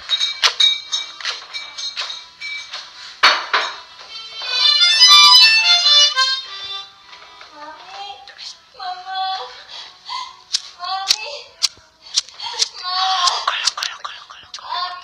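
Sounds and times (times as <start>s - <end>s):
sharp click: 10.5s - 13.9s
recording crackle: 10.5s - 14.8s.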